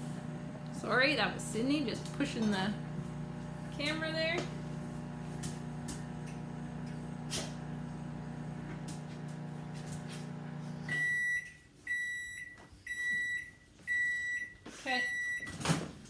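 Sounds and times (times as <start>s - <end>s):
microwave oven humming: 0.0s - 11.3s.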